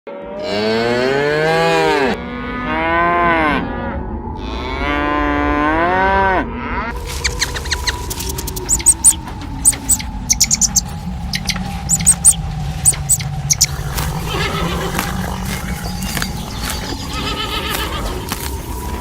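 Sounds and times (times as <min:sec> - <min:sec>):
cow mooing: 0:00.3 - 0:03.7, 0:12.0 - 0:18.3
short high chirps: 0:11.4 - 0:13.7.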